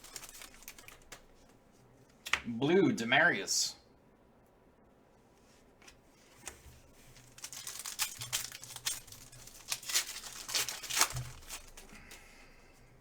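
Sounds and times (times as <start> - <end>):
foil wrapper crackling: 0.0 - 1.3, 7.0 - 12.3.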